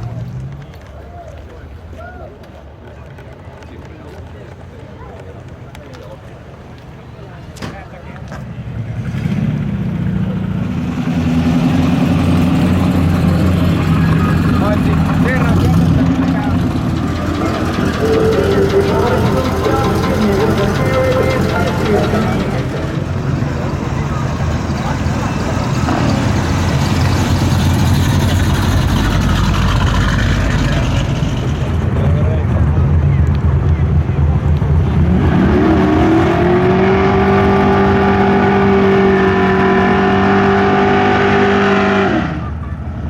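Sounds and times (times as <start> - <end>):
car engine running: 8.7 - 42.4.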